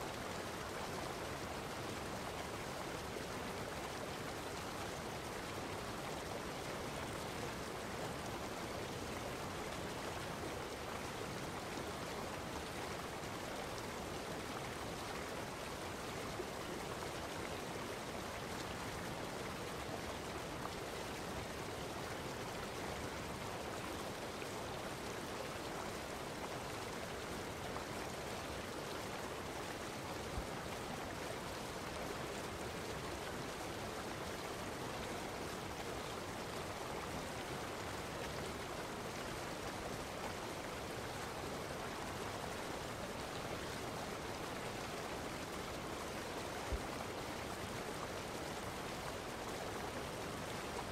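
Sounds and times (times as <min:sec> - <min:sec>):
running water rushing: 0:00.0 - 0:50.9.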